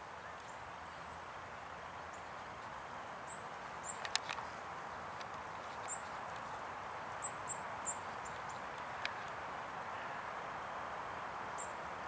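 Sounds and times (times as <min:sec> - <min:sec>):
steady background hiss: 0:00.0 - 0:12.0
small birds chirping: 0:00.1 - 0:10.3, 0:11.5 - 0:12.0
sharp clicks: 0:03.9 - 0:04.5.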